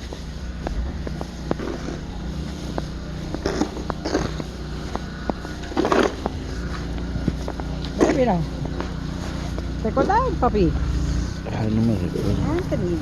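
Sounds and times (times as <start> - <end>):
rough crunching noises: 0.0 - 13.0
vehicle engine humming: 0.0 - 13.0.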